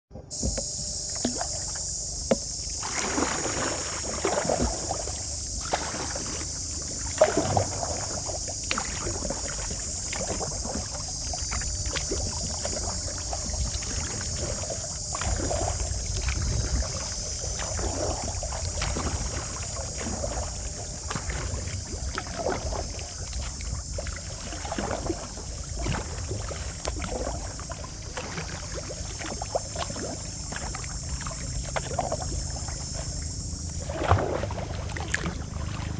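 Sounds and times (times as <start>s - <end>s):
kayak paddle splashing in water: 0.2s - 35.9s
steady high hiss: 0.3s - 25.6s.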